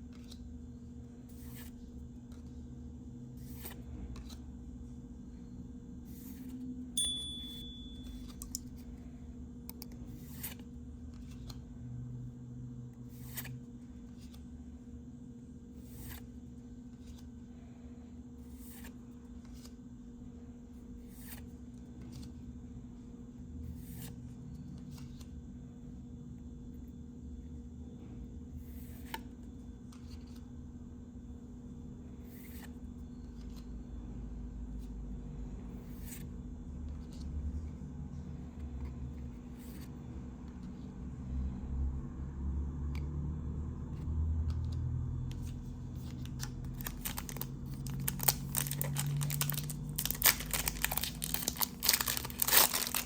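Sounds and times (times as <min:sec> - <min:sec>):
trading cards snapping: 0:46.2 - 0:53.0.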